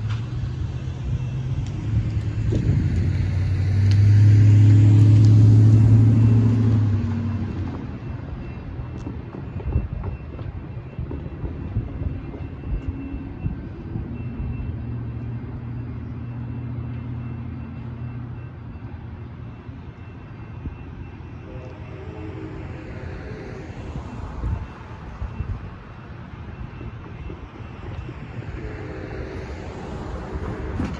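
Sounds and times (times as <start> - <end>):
engine hum and rumble: 0.0 - 30.9.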